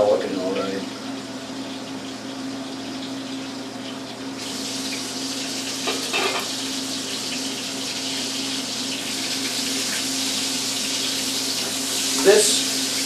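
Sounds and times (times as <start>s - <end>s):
water running from tap: 0.6s - 13.0s.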